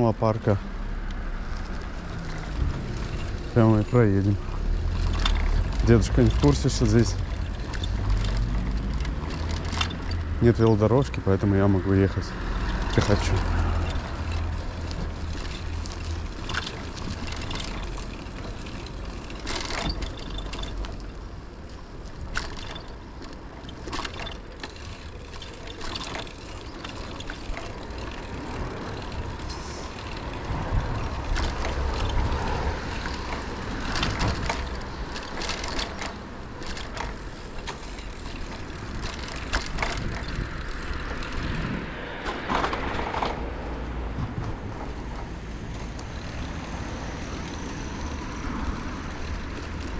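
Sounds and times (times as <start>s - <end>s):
wind rumbling on microphone: 0.9s - 10.5s, 24.8s - 49.9s
bike knocks and rattles: 1.7s - 49.9s.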